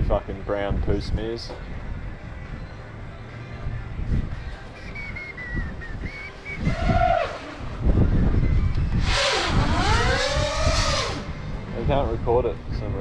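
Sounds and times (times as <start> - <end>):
wind rumble on microphone: 0.0 - 13.0
quadcopter motors whining: 6.6 - 11.8.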